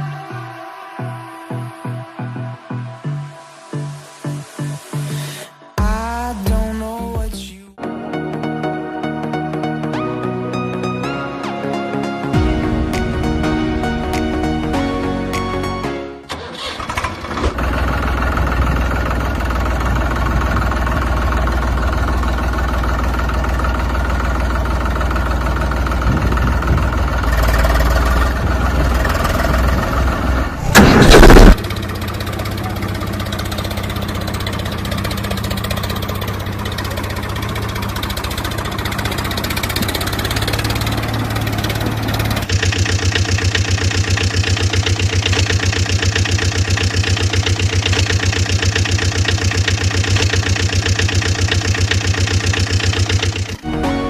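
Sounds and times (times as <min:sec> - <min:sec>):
tractor diesel engine running: 0:12.3 - 0:54.0.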